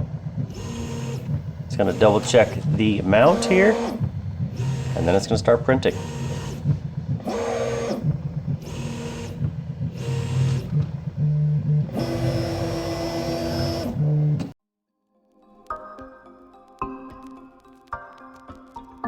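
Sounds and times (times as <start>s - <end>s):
stepper motors whining: 0.0s - 14.6s.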